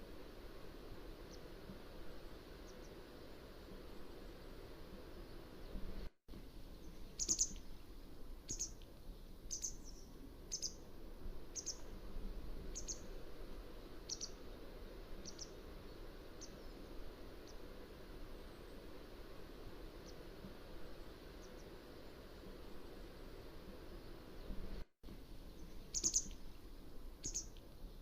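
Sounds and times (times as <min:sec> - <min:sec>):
wagtail calling: 0:07.1 - 0:07.6, 0:08.5 - 0:08.8, 0:11.6 - 0:11.9, 0:12.7 - 0:13.1, 0:14.1 - 0:14.4, 0:25.6 - 0:26.4, 0:27.2 - 0:27.5.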